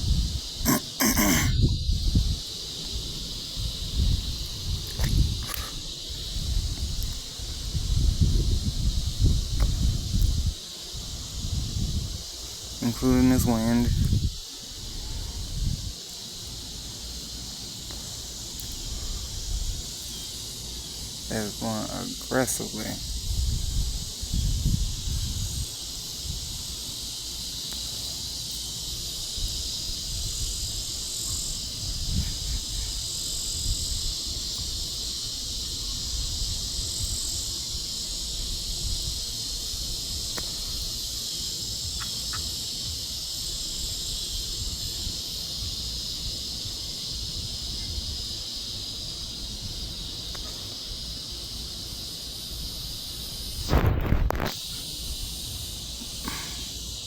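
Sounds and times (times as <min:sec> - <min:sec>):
wind rumbling on microphone: 0:00.0 - 0:16.6, 0:18.6 - 0:20.0, 0:23.0 - 0:27.0, 0:29.2 - 0:40.9, 0:43.5 - 0:50.6, 0:52.8 - 0:56.8
cicadas buzzing: 0:00.0 - 0:57.0.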